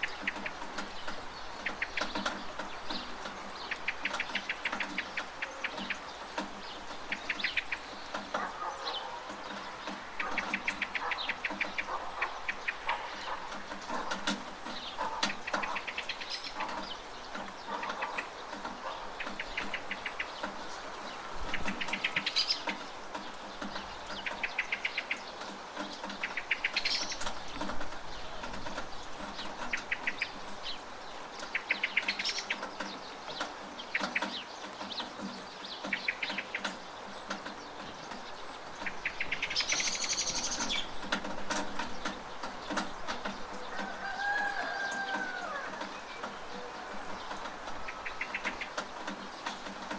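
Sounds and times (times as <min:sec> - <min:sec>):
bird chirps: 0:00.0 - 0:41.2
steady rain: 0:00.0 - 0:49.9
bird rattling trill: 0:38.8 - 0:46.0
falling bird call: 0:43.5 - 0:49.3.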